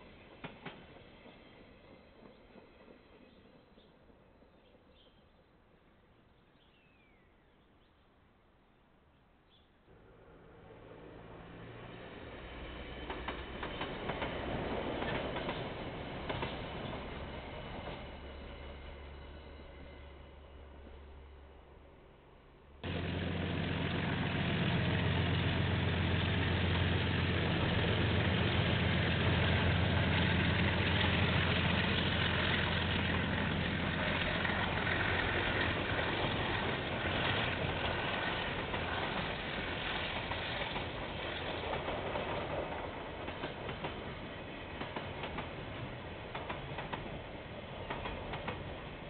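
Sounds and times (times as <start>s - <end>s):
locomotive engine drone: 9.9s - 41.0s
wheels clicking over rail joints: 30.1s - 49.0s.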